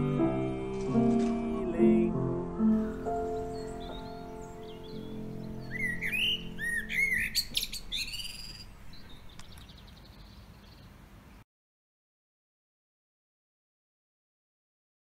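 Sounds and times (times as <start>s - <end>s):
closing music: 0.0s - 9.4s
songbird singing: 2.7s - 11.4s.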